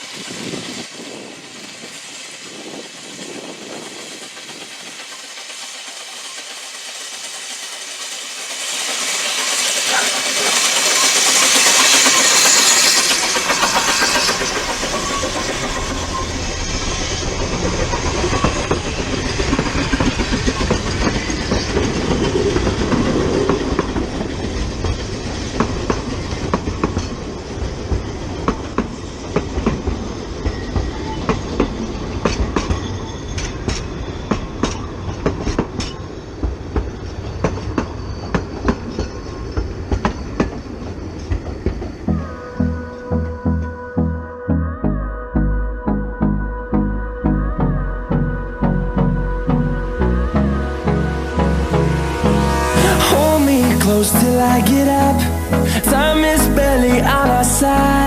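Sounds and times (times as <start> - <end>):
wheels clicking over rail joints: 0.0 - 42.2
steam train hissing rush: 0.0 - 44.0, 49.5 - 58.0
rumble of train carriages: 0.0 - 44.1, 48.2 - 58.0.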